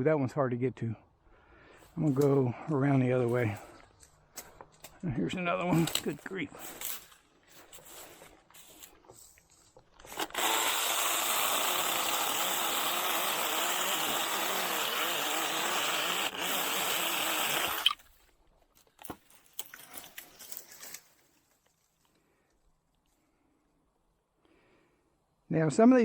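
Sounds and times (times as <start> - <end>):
rustling: 5.6 - 10.4, 17.9 - 23.2
mini chainsaw cutting wood: 10.0 - 18.0.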